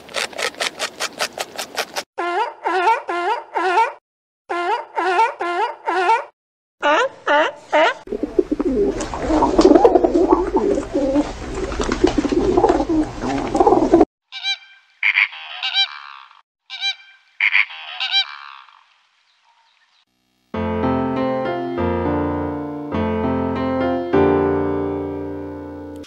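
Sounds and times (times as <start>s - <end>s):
flamingos honking: 8.1s - 18.8s.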